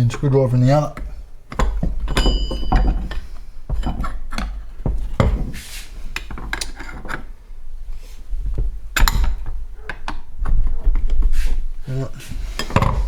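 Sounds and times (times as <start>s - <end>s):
sharp metal taps: 1.0s - 4.6s.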